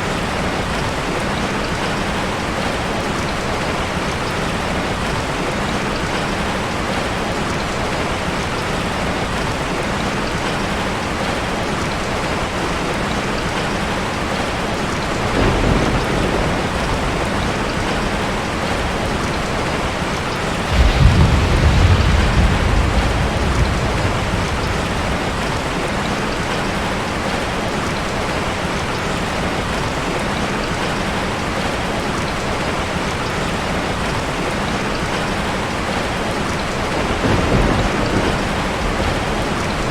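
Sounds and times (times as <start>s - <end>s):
steady rain falling: 0.0s - 39.9s
thunder rumbling: 14.0s - 27.5s, 35.0s - 39.9s.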